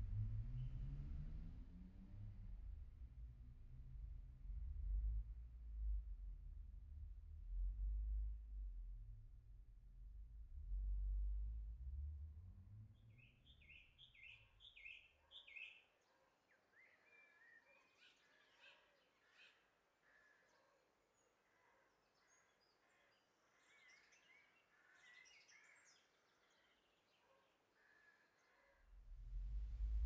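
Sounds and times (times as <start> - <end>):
faint birdsong chirps: 12.8 - 30.0.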